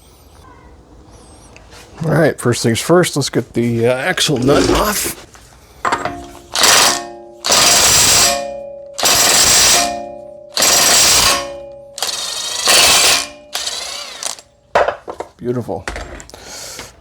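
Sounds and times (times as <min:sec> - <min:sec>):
impact wrench hammering: 0:05.9 - 0:15.2.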